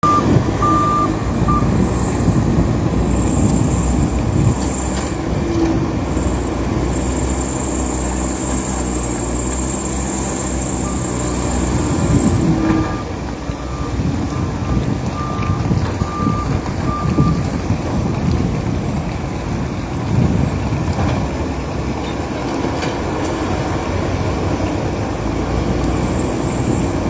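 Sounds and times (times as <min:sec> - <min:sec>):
reversing alarm beeps: 0:00.0 - 0:02.1, 0:09.4 - 0:17.4
heavy machine engine running: 0:00.0 - 0:27.0.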